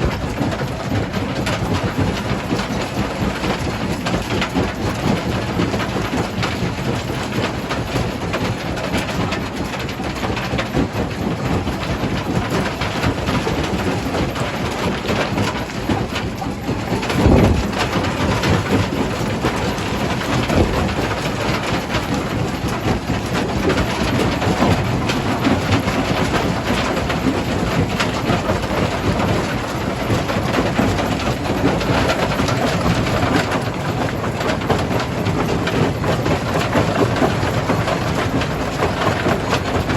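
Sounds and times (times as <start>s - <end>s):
stone crusher grinding rumble: 16.5s - 19.8s
heavy low thud: 16.9s - 18.1s.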